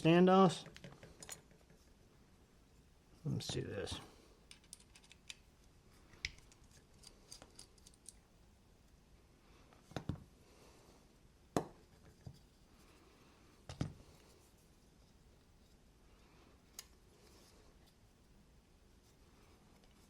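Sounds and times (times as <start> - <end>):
small ticks and scraping: 6.1 - 8.2.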